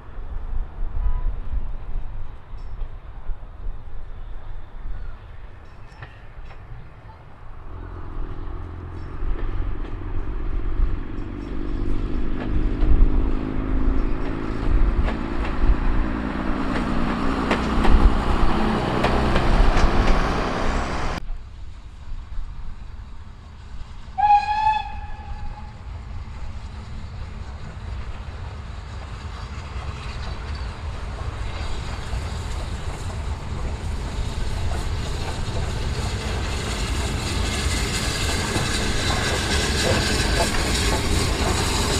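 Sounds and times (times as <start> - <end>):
train rumbling past: 0.0 - 41.9
steam locomotive whistle blast: 24.2 - 25.8.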